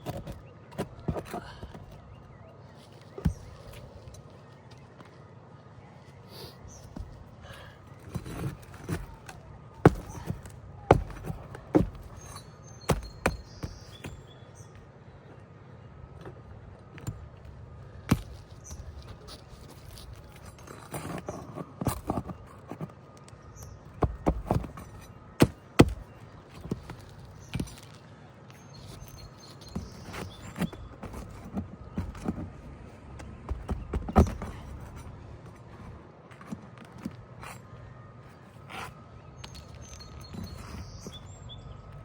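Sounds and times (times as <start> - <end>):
tool knocking and scraping shingles: 0.0 - 2.0, 3.1 - 4.2, 8.0 - 14.3, 16.2 - 23.0, 23.6 - 28.0, 28.7 - 37.7.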